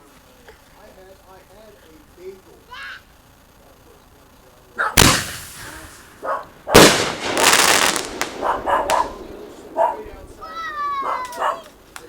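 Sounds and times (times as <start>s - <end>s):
firework crackling: 0.0s - 12.0s
loud firework bangs: 4.8s - 12.0s.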